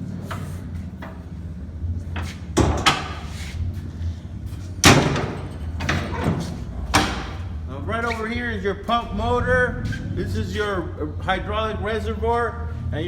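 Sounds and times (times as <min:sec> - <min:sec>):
metal door clanking: 0:04.8 - 0:08.4.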